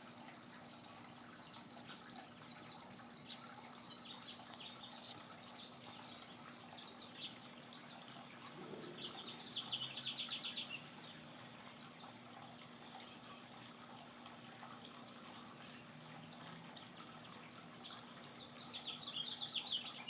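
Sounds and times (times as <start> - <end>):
songbird chirps and trill: 2.4 - 11.9, 17.8 - 20.0.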